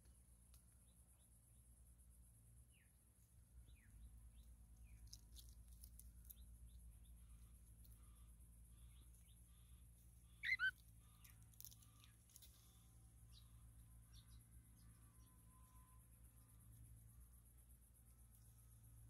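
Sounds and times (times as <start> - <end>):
low steady hum: 0.0 - 19.0
faint bird chirps: 6.2 - 17.3.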